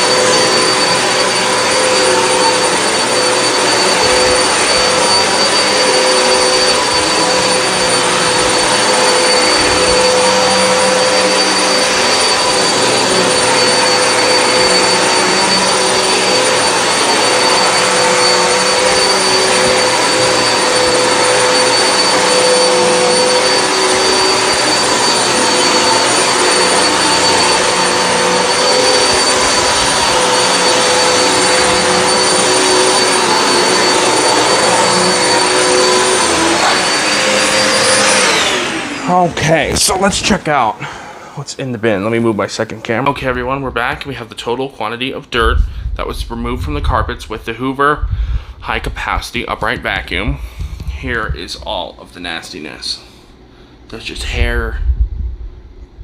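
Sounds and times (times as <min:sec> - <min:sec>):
vacuum cleaner running on carpet: 0:00.0 - 0:44.6
low pulsing hum: 0:45.4 - 0:47.1, 0:48.0 - 0:48.6, 0:54.7 - 0:56.0.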